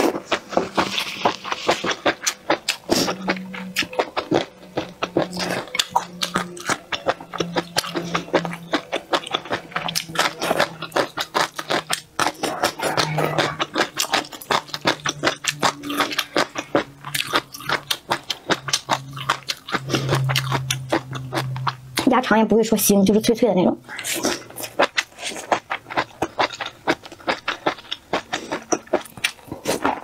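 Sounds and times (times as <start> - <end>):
chewing crunchy food: 0.0 - 22.1, 23.9 - 30.0.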